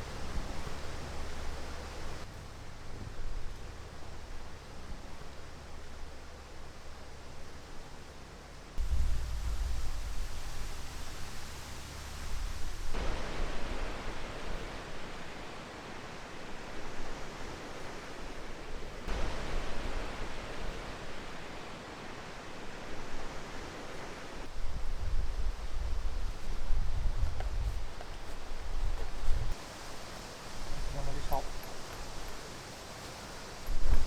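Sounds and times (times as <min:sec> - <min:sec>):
wind buffeting microphone: 0:08.8 - 0:14.4, 0:24.5 - 0:29.6
wind rushing hiss: 0:08.8 - 0:28.0.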